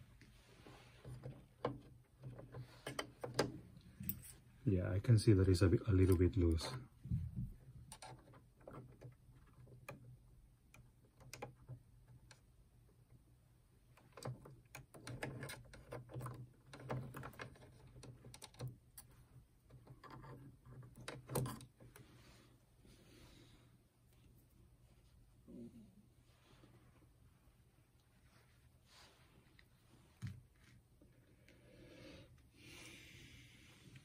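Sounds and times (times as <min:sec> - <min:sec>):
small parts clicking and rattling: 0:07.8 - 0:12.5, 0:13.9 - 0:22.0.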